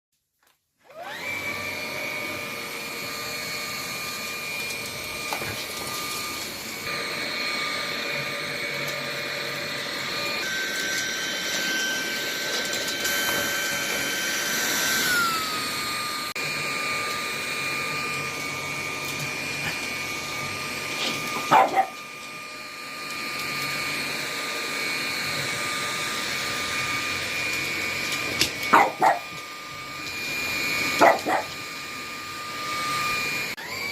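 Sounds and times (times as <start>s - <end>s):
vacuum cleaner whining: 0.8s - 33.9s
dog barking: 21.4s - 22.0s, 28.7s - 29.3s, 31.0s - 31.6s.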